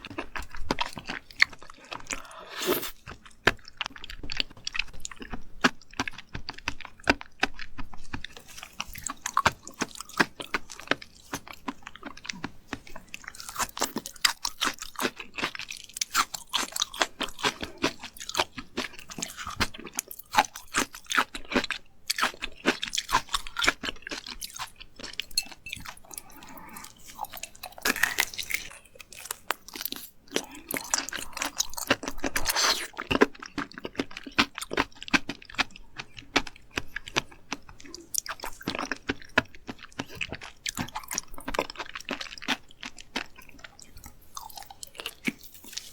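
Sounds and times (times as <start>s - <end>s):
person chewing crunchy food: 0.0s - 45.9s
wet mouth sounds: 25.4s - 34.0s.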